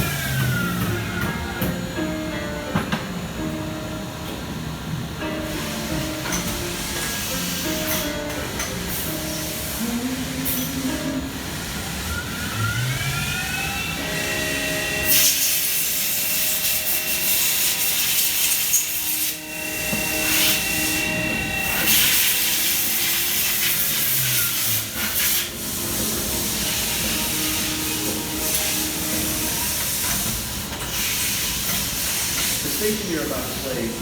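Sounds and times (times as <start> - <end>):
milling machine spindle whine: 0.0 - 34.0
loud hiss: 14.0 - 34.0.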